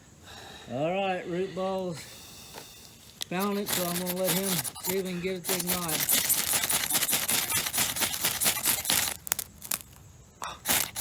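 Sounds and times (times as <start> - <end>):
fire-starting rod scraping: 3.1 - 11.0.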